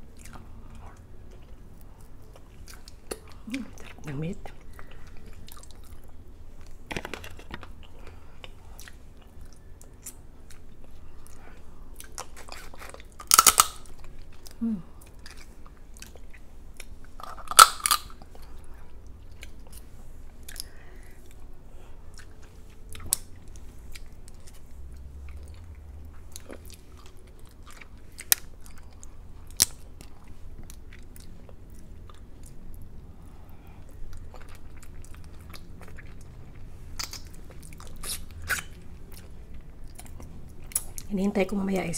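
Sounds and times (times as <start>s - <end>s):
wet chewing: 0.1s - 32.9s, 33.7s - 41.1s
shell crunching cracks: 12.5s - 14.1s, 17.2s - 18.3s.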